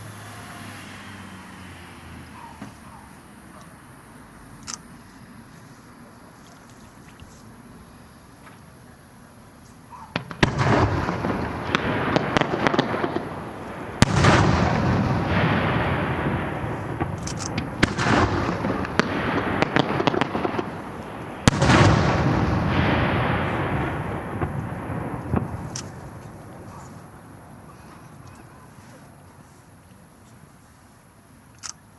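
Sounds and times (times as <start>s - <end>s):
firework crackling: 0.0s - 30.6s
firework shells bursting: 9.9s - 29.2s.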